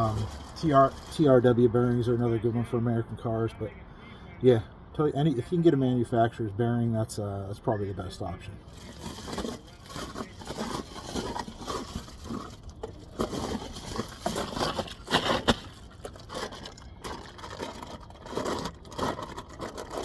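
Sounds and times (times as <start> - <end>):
packaging crinkling: 0.0 - 1.4, 8.7 - 20.0.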